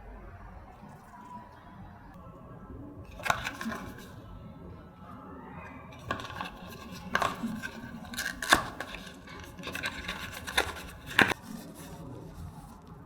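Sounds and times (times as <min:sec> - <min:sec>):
packaging clicks and scrapes: 0:03.1 - 0:04.2, 0:05.9 - 0:13.0
packaging rustling: 0:03.1 - 0:04.2, 0:05.9 - 0:12.8.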